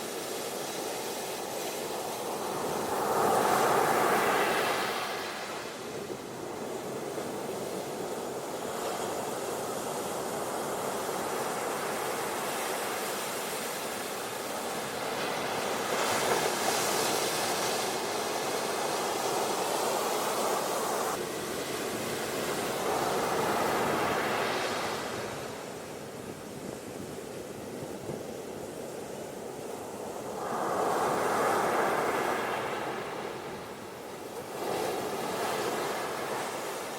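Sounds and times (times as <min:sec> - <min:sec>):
ocean surf on beach: 0:00.0 - 0:36.9.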